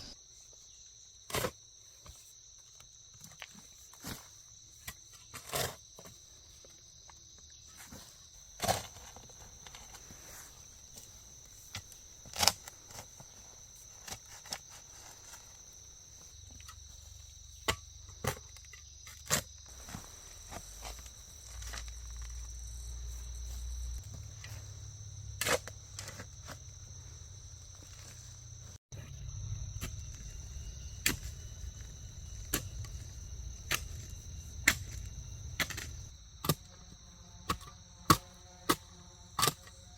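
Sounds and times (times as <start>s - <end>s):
insects buzzing: 0.0s - 39.9s.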